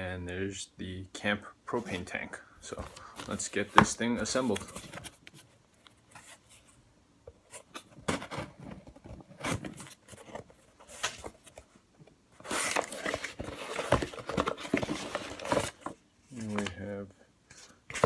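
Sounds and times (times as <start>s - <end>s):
packaging rustling and scraping: 1.8s - 6.8s, 7.5s - 11.7s, 12.4s - 16.6s.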